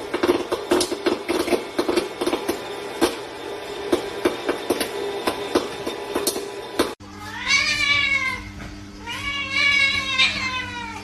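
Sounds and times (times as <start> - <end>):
cat meowing: 7.1 - 11.0.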